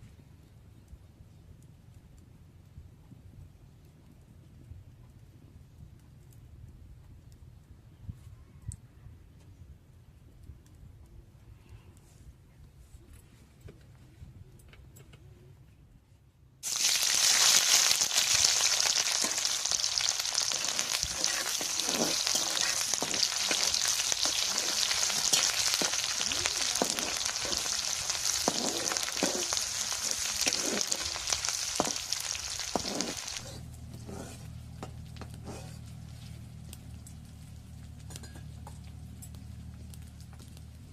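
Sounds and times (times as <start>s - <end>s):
food sizzling in hot oil: 16.6s - 35.7s
stirring strokes in pan: 16.6s - 36.7s.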